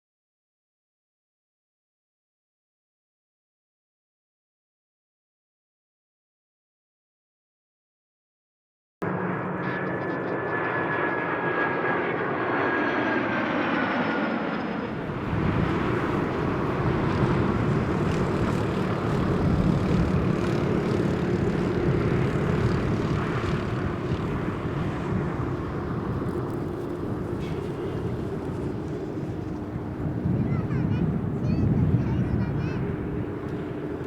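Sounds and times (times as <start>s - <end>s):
jet engines passing overhead: 9.0s - 34.0s.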